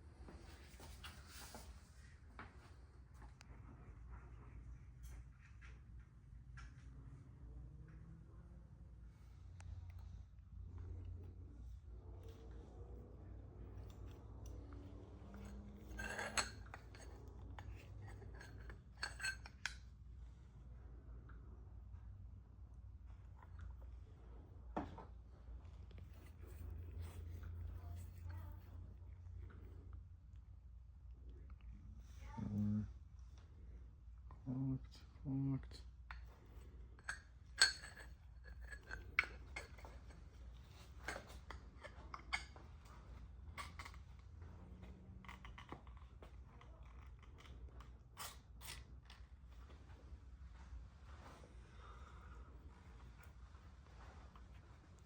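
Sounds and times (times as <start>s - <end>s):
low steady hum: 0.0s - 55.0s
metal tools clinking: 15.3s - 19.7s.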